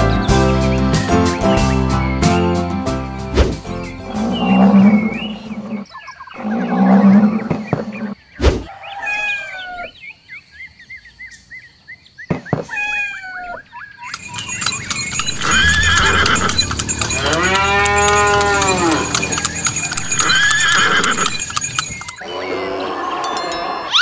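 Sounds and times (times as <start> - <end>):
horse neighing: 4.1 - 5.8, 14.1 - 24.0
cat meowing: 12.7 - 13.6
hoofbeats clattering: 14.1 - 22.3.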